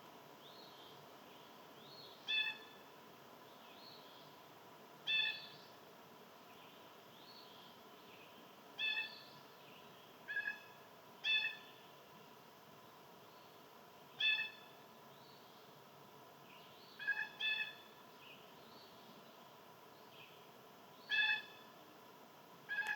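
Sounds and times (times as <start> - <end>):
faint bird calls: 0.4 - 2.9, 5.0 - 5.7, 6.5 - 11.9, 13.3 - 15.7, 16.5 - 21.8, 22.7 - 22.9
bird short nasal calls: 10.3 - 11.7, 14.2 - 14.7.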